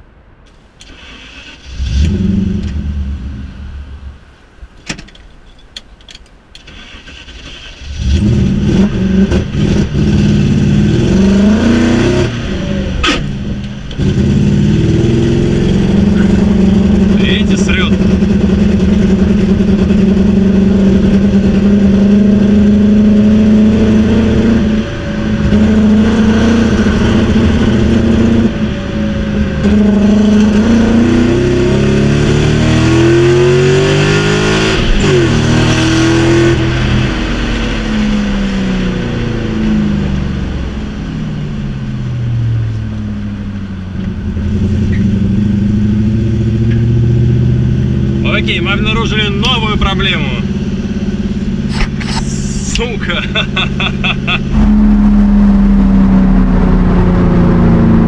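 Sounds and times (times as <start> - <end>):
car engine running: 8.2 - 31.0, 41.4 - 58.0.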